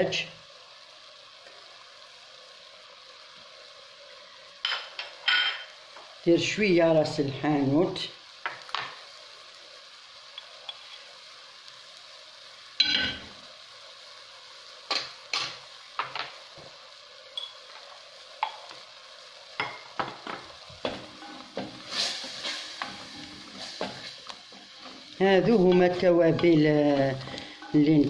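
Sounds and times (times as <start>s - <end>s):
onion and garlic sizzling in oil: 0.0s - 28.0s.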